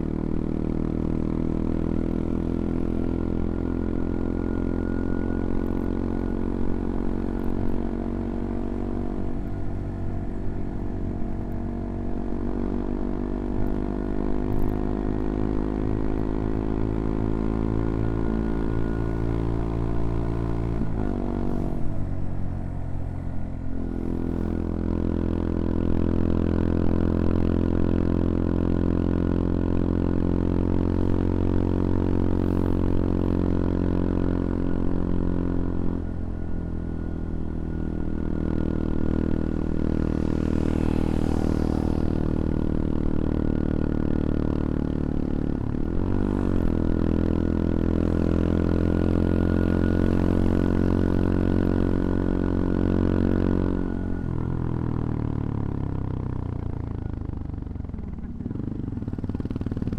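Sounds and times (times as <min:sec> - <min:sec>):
motorcycle engine running under load: 0:00.0 - 0:59.9.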